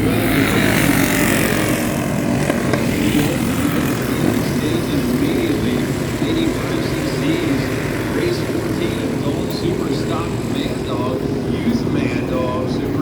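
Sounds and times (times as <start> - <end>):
racing motorcycle engines revving: 0.0 - 13.0.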